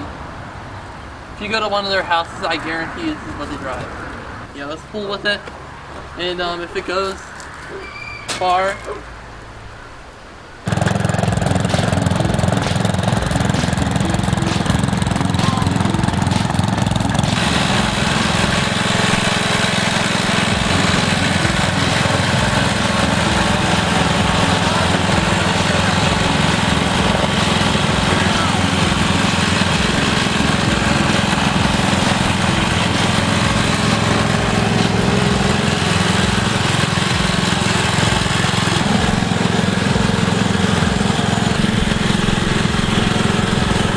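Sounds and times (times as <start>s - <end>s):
lawn tractor engine running: 10.6s - 43.9s.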